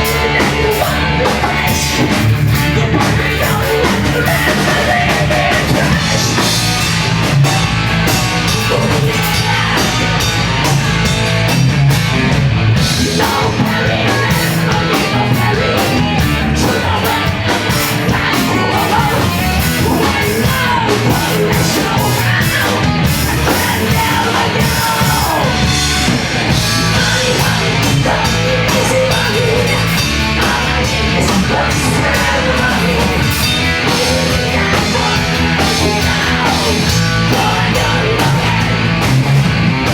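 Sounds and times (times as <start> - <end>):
bass: 0.0 - 39.9
distorted guitars: 0.0 - 39.9
drums: 0.0 - 39.9
vocals: 0.0 - 39.9.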